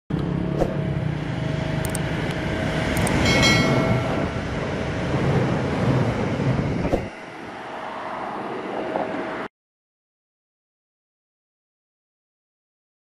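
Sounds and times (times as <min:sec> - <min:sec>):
train rumbling with wheel clatter: 0:00.2 - 0:09.5
sharp click: 0:03.0 - 0:03.2.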